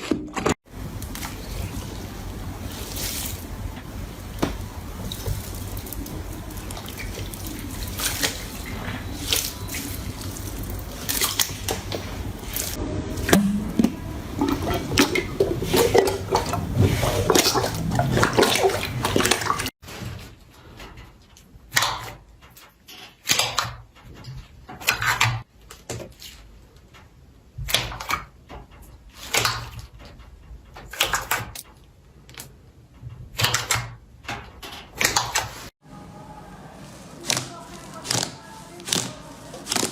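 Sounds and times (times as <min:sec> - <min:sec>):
slime squishing by hand: 0:00.8 - 0:19.7, 0:36.8 - 0:39.9.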